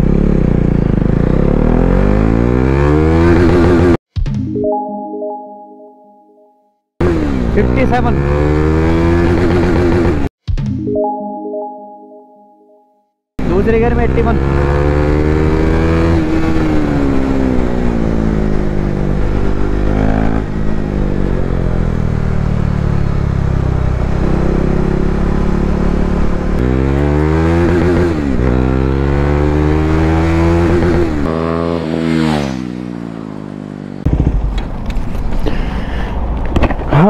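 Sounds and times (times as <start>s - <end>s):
motorcycle engine revving: 0.0s - 4.0s, 7.0s - 10.3s, 13.4s - 34.7s.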